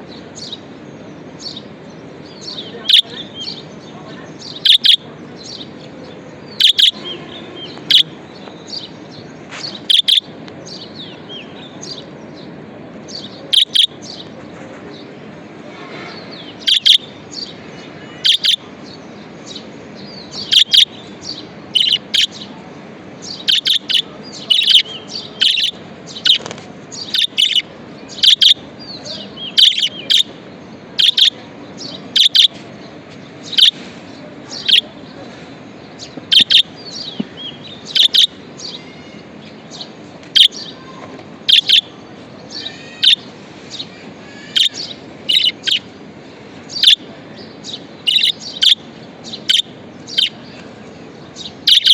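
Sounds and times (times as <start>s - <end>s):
budgerigars chirping: 2.3s - 3.6s, 4.4s - 5.7s, 6.5s - 8.1s, 9.6s - 12.0s, 13.1s - 14.3s, 16.3s - 18.6s, 19.5s - 22.4s, 23.3s - 32.6s, 33.5s - 33.8s, 34.5s - 34.9s, 36.0s - 38.9s, 39.8s - 40.7s, 41.5s - 41.9s, 42.5s - 43.2s, 44.4s - 45.9s, 46.6s - 50.4s, 51.3s - 51.9s.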